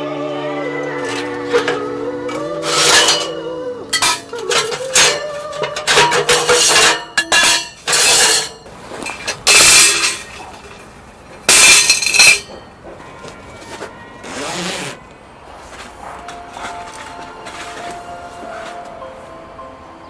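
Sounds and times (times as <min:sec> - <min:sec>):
dishes and cookware clattering: 0:01.0 - 0:14.0.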